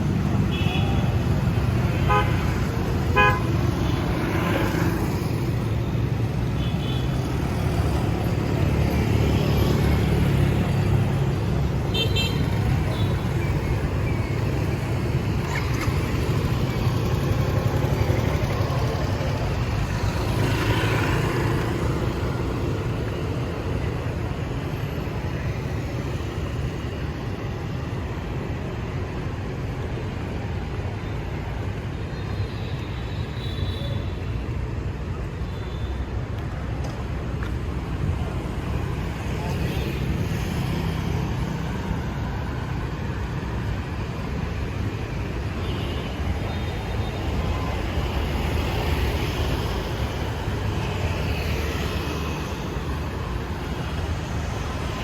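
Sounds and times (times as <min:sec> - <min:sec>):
motorbikes and cars passing: 0:00.0 - 0:55.0.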